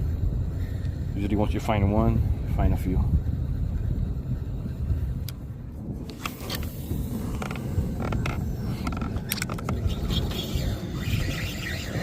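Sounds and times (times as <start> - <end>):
steady low rumble: 0.0 - 12.0
kayak creaking: 6.0 - 10.2
sharp clicks of gear: 6.0 - 10.6.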